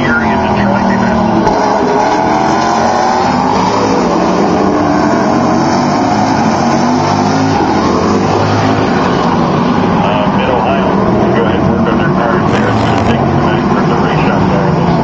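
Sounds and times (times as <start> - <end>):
race car engines: 0.0 - 15.0.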